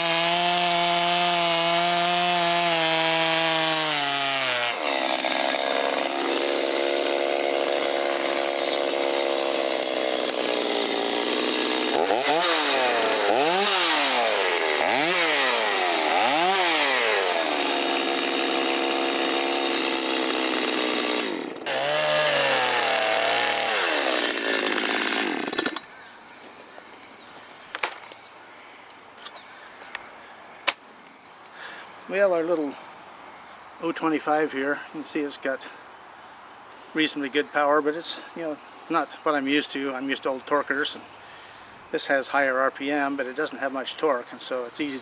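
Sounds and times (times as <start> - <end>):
chainsaw cutting wood: 0.0 - 25.9.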